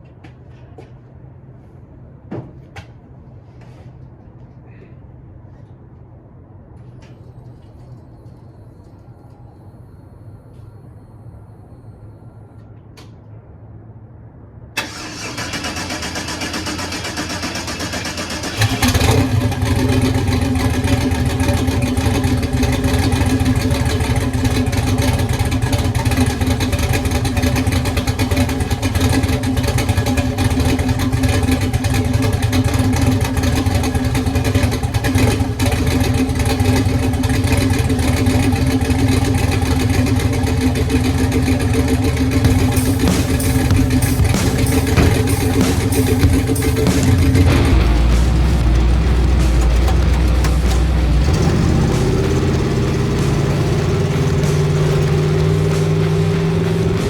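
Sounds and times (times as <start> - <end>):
engine cranking and idling: 14.8 - 57.0.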